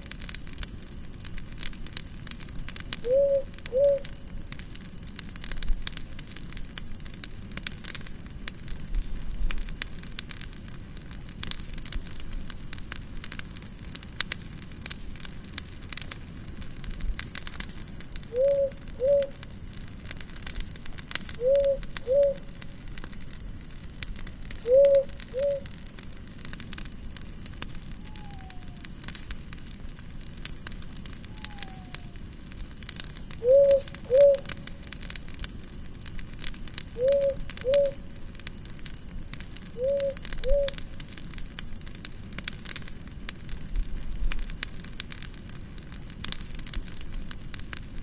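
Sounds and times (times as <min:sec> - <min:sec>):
campfire crackling and popping: 0:00.0 - 0:48.0
high pips: 0:12.0 - 0:14.3.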